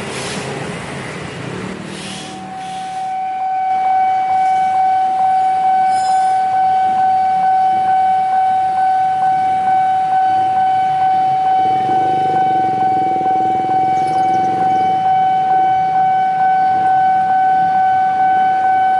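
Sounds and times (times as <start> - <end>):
railway warning tone: 1.8 - 18.9.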